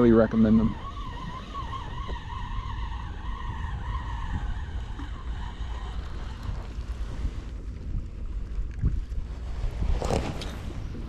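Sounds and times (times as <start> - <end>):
wavering high whine: 0.0 - 7.7
wind rumbling on microphone: 0.0 - 11.0.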